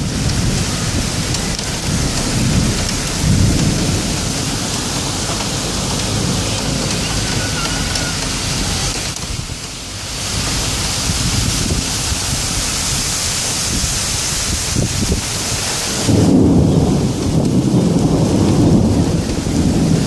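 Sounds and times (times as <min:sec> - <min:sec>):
heavy rain falling: 0:00.0 - 0:20.0
thunder rumbling: 0:00.0 - 0:20.0.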